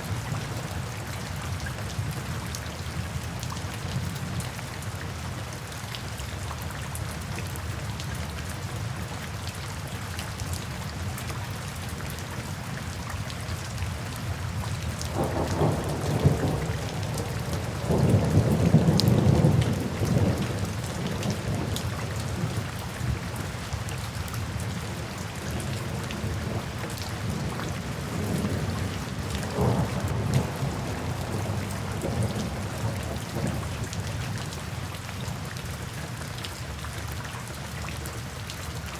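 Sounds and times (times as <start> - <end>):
steady rainfall: 0.0 - 38.9
thunder rumbling: 15.1 - 22.5, 27.2 - 33.9.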